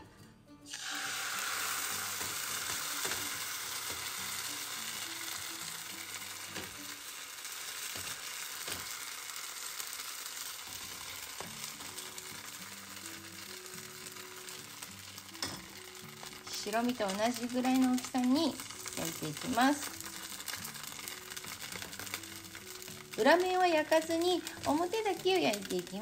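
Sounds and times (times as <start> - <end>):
batter sizzling in hot oil: 0.7 - 26.0.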